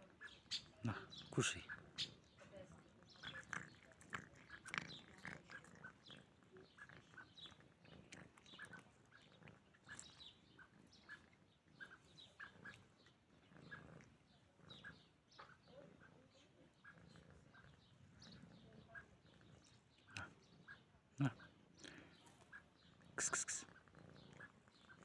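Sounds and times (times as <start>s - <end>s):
cat chewing and smacking: 3.2s - 10.1s.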